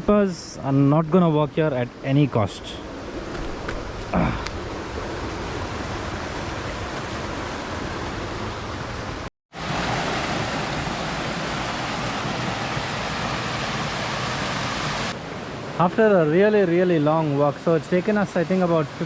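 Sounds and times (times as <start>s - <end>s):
waterfall rushing: 4.2s - 19.0s.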